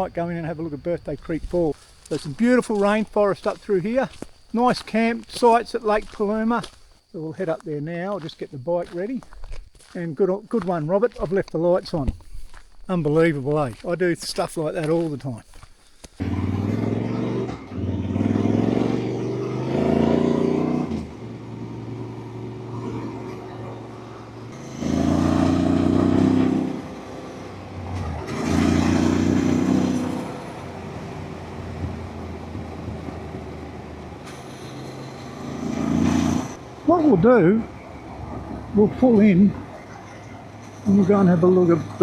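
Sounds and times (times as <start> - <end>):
motorcycle engine accelerating: 16.2 - 32.6.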